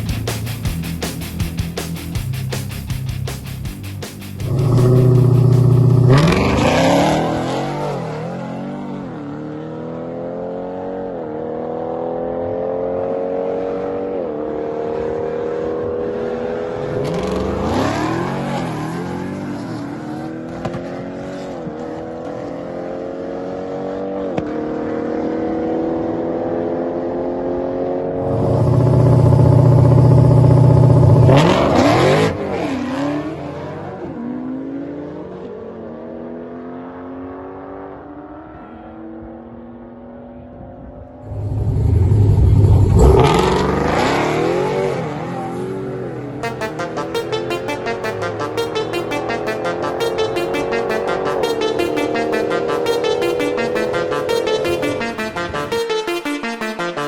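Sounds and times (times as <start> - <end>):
car engine accelerating through gears: 4.3 - 38.6, 41.2 - 46.3.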